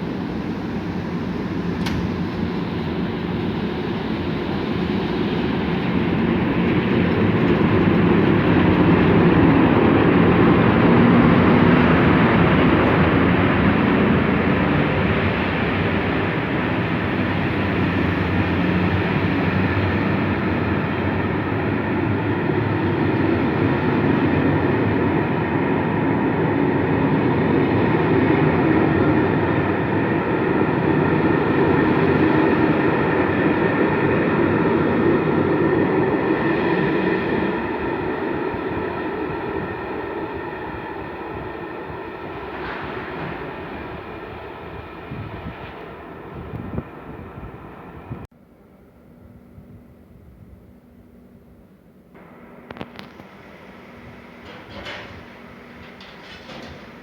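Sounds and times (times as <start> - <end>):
train wheels rumbling on track: 0.0 - 48.3, 52.2 - 57.0.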